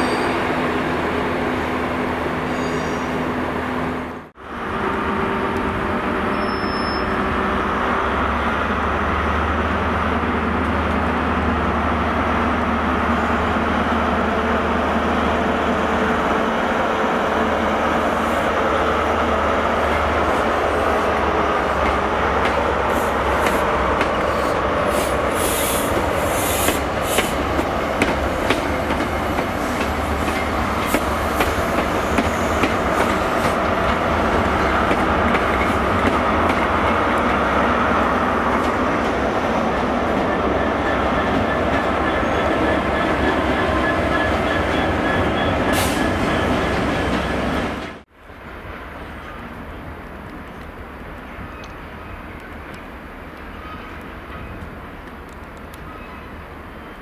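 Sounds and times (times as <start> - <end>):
diesel train rolling past: 0.0 - 57.0
faint wheel squeal: 2.5 - 3.2, 6.3 - 7.2.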